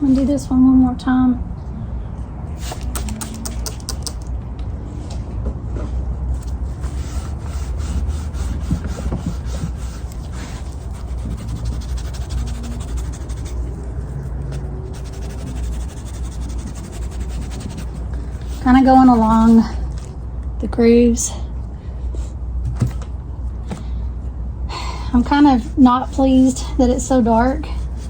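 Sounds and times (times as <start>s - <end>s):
cloth rubbing on wooden board: 6.7s - 19.4s.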